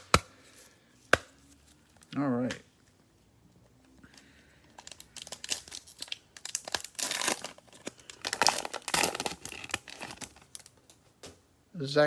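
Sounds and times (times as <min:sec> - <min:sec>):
plastic packaging crinkling and tearing: 0:04.7 - 0:10.9.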